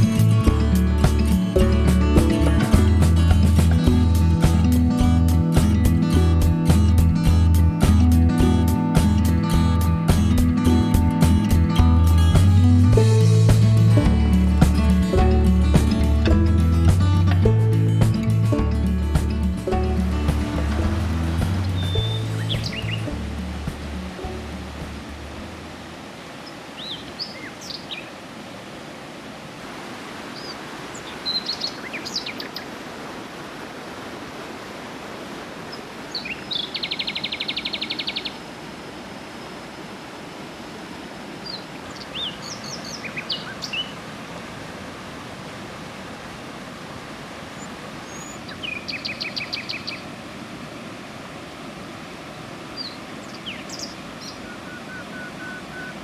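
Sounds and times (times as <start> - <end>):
river rushing: 0.0 - 56.0
birds chirping and whistling: 21.5 - 23.2
bird trill: 21.6 - 23.1.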